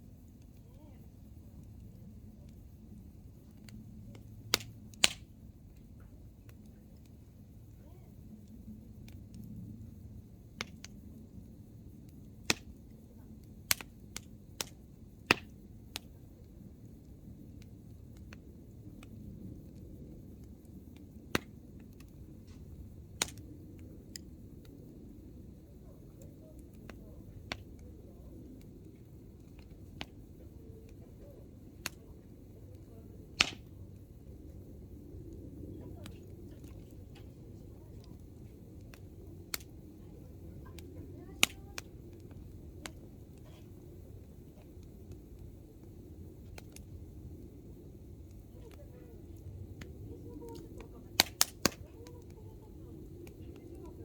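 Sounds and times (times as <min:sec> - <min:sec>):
campfire low rumble: 0:00.0 - 0:54.0
logs crackling and popping: 0:01.3 - 0:54.0
sharp pop of fire: 0:04.5 - 0:05.3, 0:12.4 - 0:12.8, 0:13.6 - 0:16.1, 0:23.2 - 0:23.5, 0:33.3 - 0:33.8, 0:50.5 - 0:51.8.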